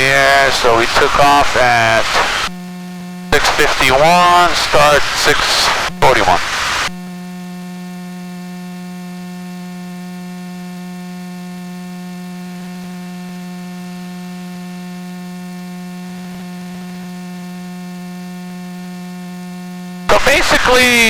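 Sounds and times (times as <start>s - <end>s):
low electrical hum: 0.0s - 21.0s
faint hiss: 3.3s - 6.9s.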